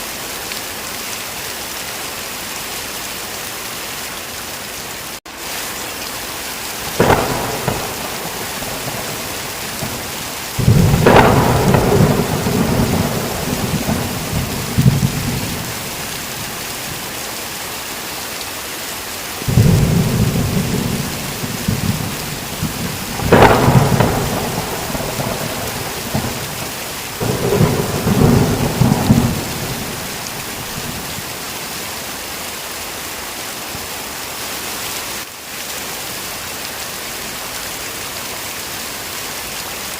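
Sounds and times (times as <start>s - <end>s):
heavy rain falling: 0.0s - 39.9s
thunder cracks and rumbles: 6.9s - 17.0s, 19.4s - 31.2s.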